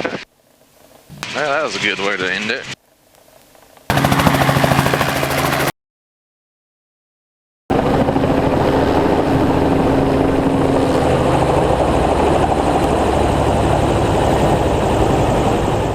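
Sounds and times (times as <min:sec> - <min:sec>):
helicopter rotor beating: 0:03.9 - 0:05.7, 0:07.7 - 0:15.9.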